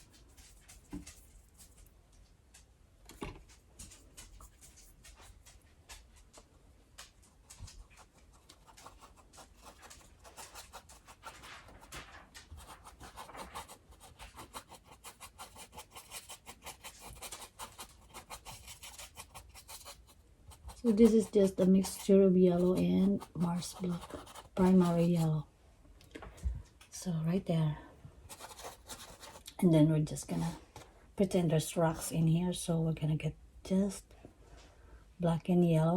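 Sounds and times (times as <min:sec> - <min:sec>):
paintbrush dabbing on canvas: 0:12.5 - 0:25.4, 0:28.3 - 0:29.6.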